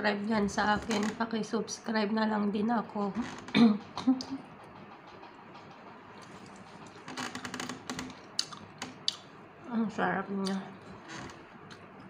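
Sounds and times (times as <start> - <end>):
person chewing with wet mouth clicks: 8.3 - 9.3.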